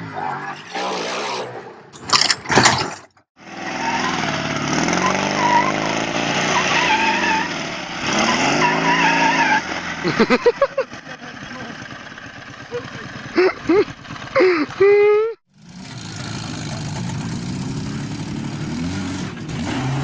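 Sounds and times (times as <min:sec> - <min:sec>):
motorcycle engine revving: 0:03.4 - 0:20.0.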